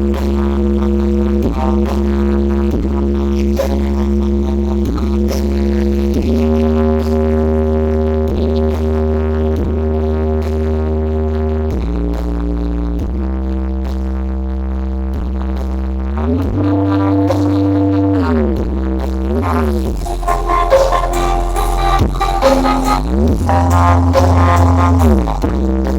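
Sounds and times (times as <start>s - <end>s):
deep sliding bass notes: 0.0s - 25.9s
electronic dance music: 19.5s - 25.7s.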